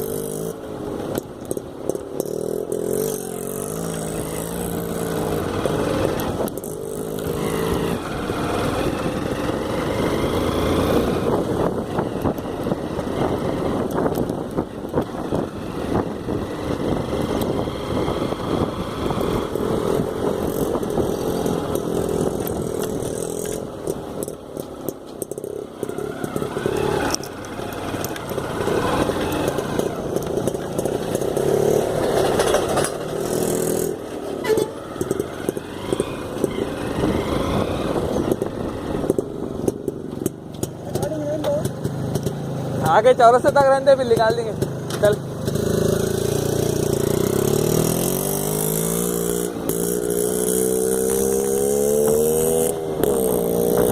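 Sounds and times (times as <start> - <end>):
motorcycle engine running: 0.0 - 53.9
knocks and rattles from rough ground: 20.3 - 36.8.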